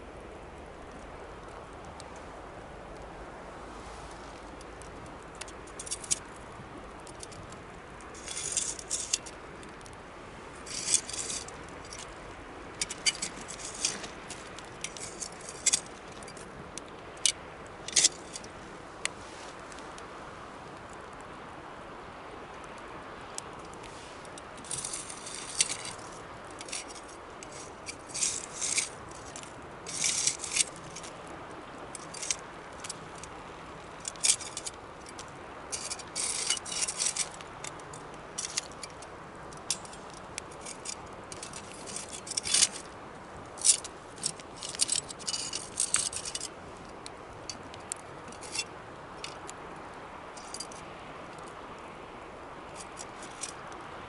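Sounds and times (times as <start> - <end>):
low hiss: 0.0 - 54.0
campfire crackling and popping: 4.7 - 21.4, 22.6 - 48.3.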